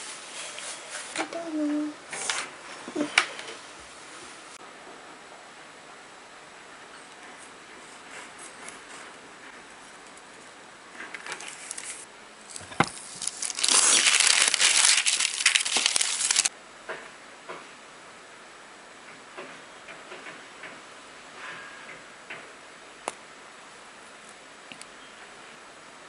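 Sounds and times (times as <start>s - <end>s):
packaging crinkling and crackling: 11.0s - 16.5s.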